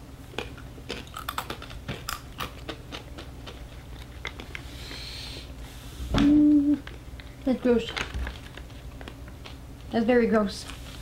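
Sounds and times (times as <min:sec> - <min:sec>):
sharp crunches of chewing: 0:00.3 - 0:05.1
foil snack packet rustling: 0:06.8 - 0:11.0.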